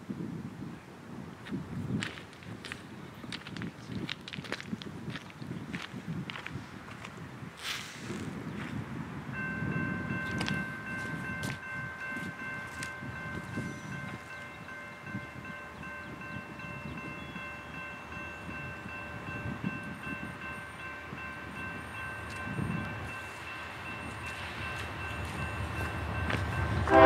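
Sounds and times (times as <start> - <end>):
train rumbling past: 8.1 - 27.0
high-pitched ringing tone: 9.4 - 27.0.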